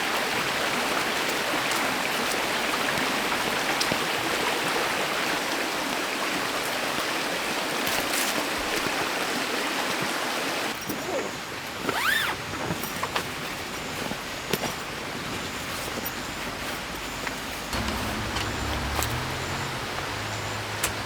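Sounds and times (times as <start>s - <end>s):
stream water rushing: 0.0s - 10.8s, 17.7s - 21.0s.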